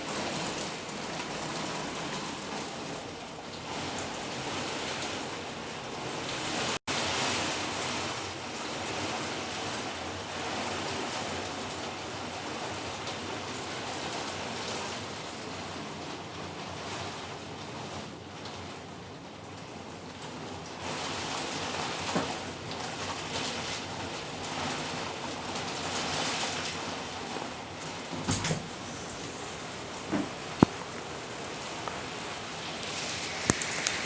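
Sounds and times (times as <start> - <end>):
heavy rain hissing: 20.8 - 34.0.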